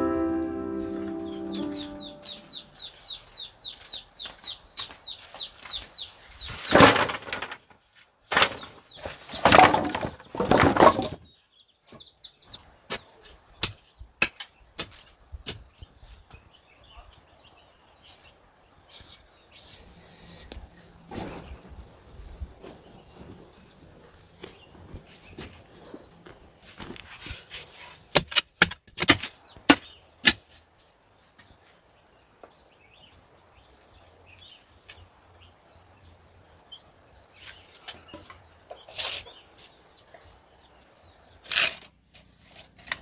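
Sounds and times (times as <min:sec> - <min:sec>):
bird chirping: 0:00.0 - 0:06.7
high insect drone: 0:17.8 - 0:27.2.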